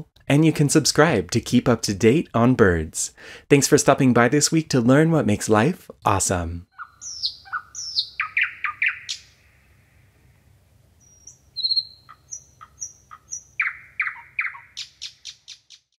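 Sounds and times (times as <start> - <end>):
birds chirping: 6.6 - 16.0
thin high bird whistles: 11.0 - 15.8.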